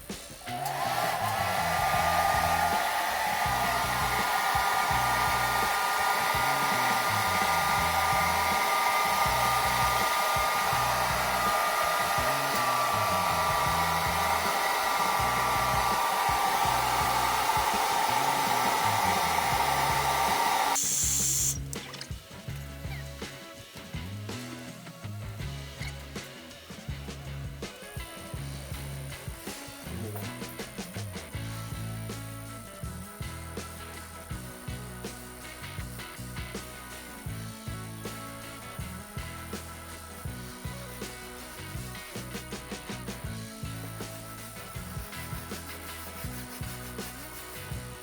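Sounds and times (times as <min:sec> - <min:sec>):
hot-air blower motor whine: 0:00.0 - 0:21.6.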